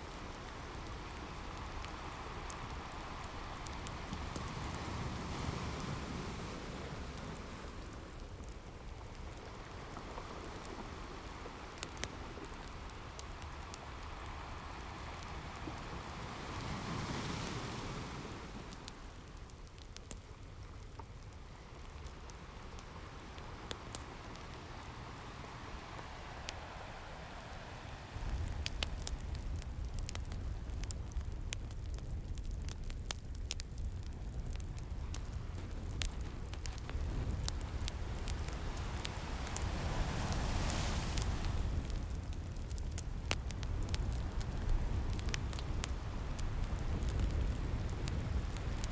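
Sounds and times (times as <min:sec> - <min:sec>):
ocean waves washing in: 0:00.0 - 0:19.4, 0:22.1 - 0:29.6, 0:36.4 - 0:42.6
wood fire crackling: 0:00.0 - 0:48.9.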